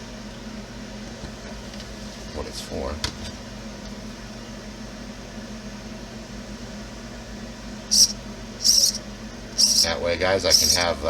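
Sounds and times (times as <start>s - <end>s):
low electrical hum: 0.0s - 11.0s
small servo whirring: 7.9s - 9.0s, 9.6s - 10.9s.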